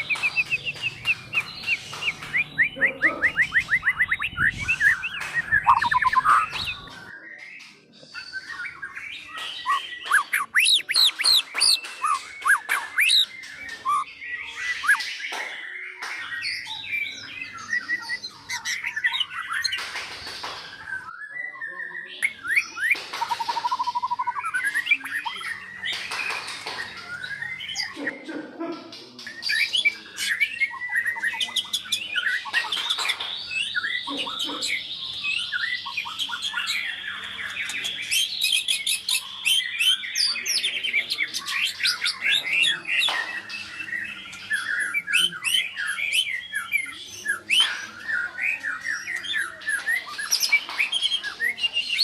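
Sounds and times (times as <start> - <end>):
songbird singing varied song: 0.0 - 19.8, 20.4 - 28.0.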